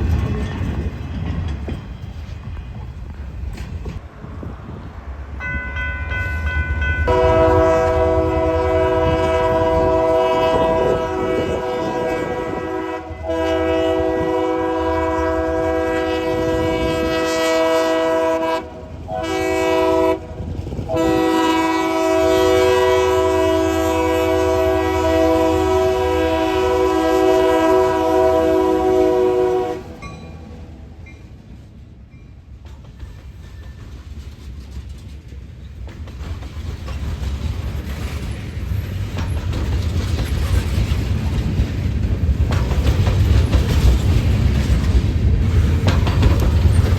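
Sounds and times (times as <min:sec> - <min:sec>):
moving train rumble: 0:00.0 - 0:46.9
wind: 0:00.0 - 0:46.9
locomotive air horn blasts: 0:07.1 - 0:30.0.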